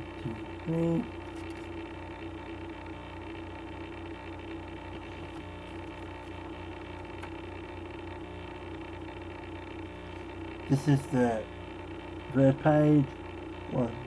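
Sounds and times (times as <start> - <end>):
steady electrical hum: 0.0 - 14.0.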